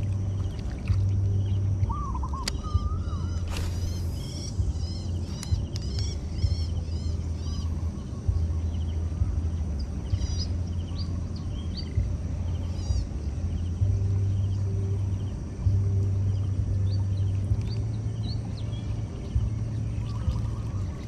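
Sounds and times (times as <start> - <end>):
birds chirping: 0.0 - 21.0
steady low rumble: 0.0 - 21.0.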